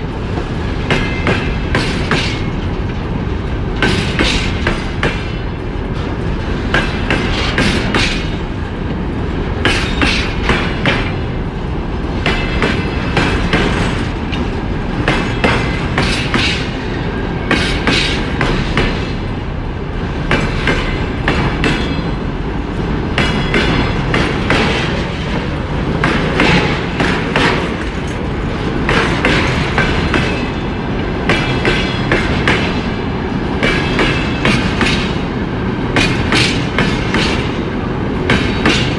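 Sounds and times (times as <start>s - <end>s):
freight train rumbling past: 0.0s - 38.9s
wheels clattering over rail joints: 23.1s - 32.9s.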